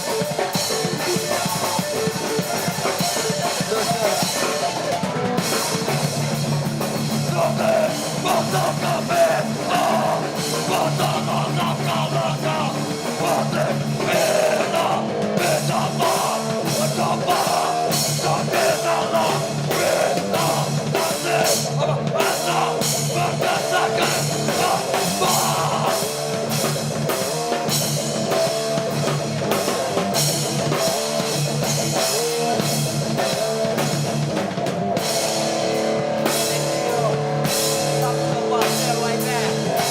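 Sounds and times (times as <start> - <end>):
hardcore band playing live: 0.0 - 39.9
shouted vocals: 7.0 - 26.5.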